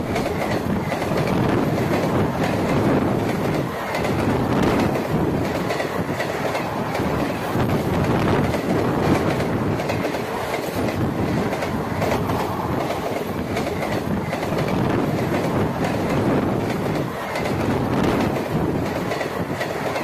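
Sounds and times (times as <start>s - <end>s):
train rumble: 0.0s - 20.0s
wheels clattering on rails: 0.0s - 20.0s.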